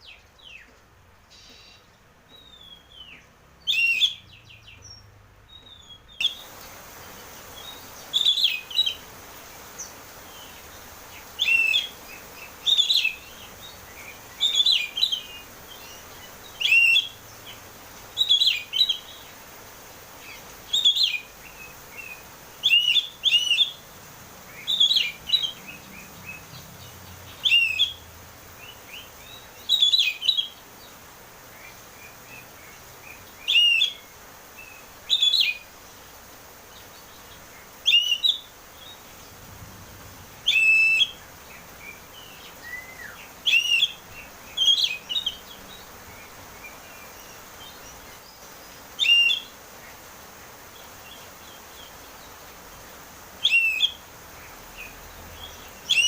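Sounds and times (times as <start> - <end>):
bird singing whistled phrases: 3.7 - 6.5, 7.6 - 9.0, 11.4 - 12.0, 16.6 - 17.2, 22.0 - 23.8, 27.4 - 28.0, 28.6 - 30.6, 33.4 - 34.0, 37.9 - 38.5, 40.4 - 41.2, 41.9 - 45.4, 49.0 - 49.5, 53.4 - 54.0.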